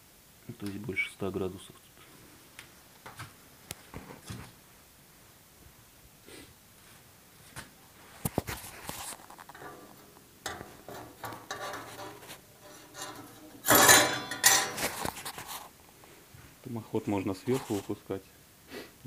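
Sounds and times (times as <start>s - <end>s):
metal clattering scrape with ringing: 8.8s - 15.6s
light metal clicks and knocks: 9.4s - 15.2s.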